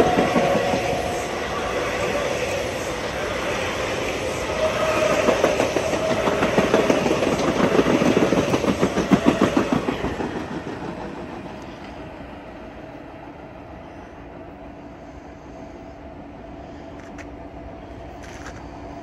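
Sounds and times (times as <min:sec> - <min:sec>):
train wheels clicking over rail joints: 0:04.1 - 0:12.0, 0:18.0 - 0:19.0.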